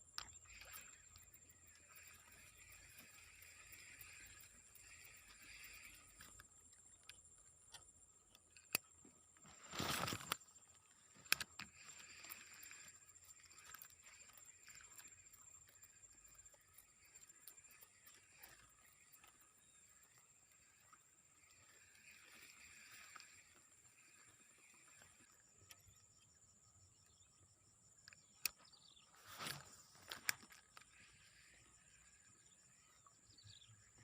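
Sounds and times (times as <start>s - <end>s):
noisy rustle: 9.4s - 10.5s.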